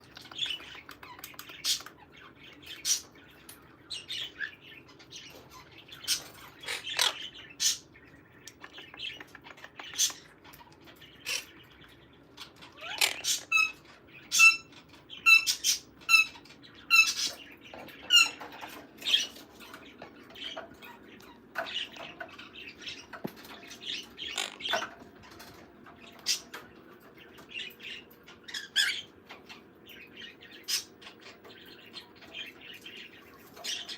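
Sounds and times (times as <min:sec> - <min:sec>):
parrot squawks and chirps: 0:05.6 - 0:07.9, 0:09.2 - 0:11.6, 0:12.4 - 0:19.7, 0:24.0 - 0:25.0, 0:28.4 - 0:29.1.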